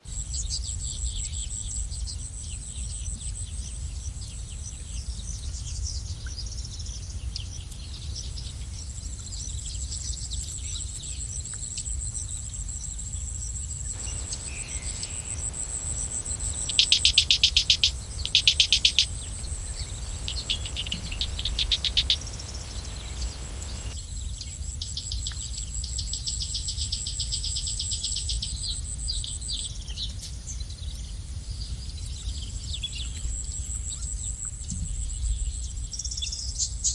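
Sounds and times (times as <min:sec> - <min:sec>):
songbirds chirping and trilling: 0:00.4 - 0:24.2
low background rumble: 0:12.8 - 0:24.4
high-pitched insect drone: 0:13.9 - 0:24.0
loud rapid bird trills: 0:14.0 - 0:24.0.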